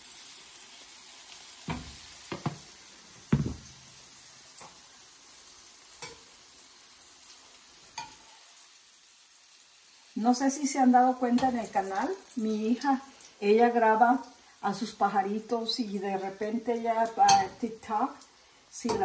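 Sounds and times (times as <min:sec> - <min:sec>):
food sizzling in oil: 0:00.0 - 0:19.0.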